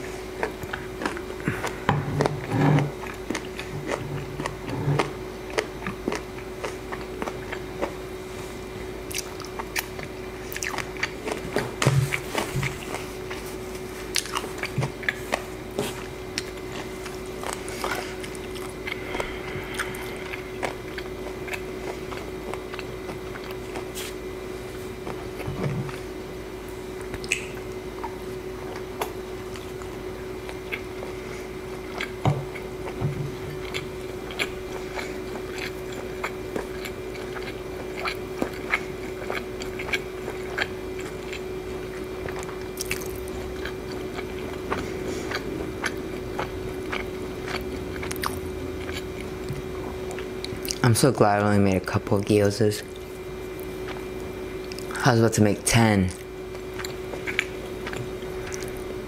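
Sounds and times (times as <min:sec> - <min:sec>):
person chewing food: 0:00.0 - 0:51.0, 0:52.8 - 0:55.0, 0:56.1 - 0:59.0
steady low hum: 0:00.0 - 0:59.0
wet mouth clicks and smacks: 0:27.2 - 0:27.6.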